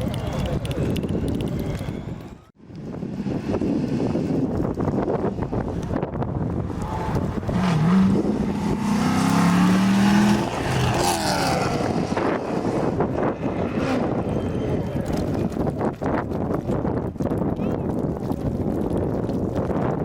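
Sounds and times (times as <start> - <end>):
rally car passing at speed: 6.6 - 15.4.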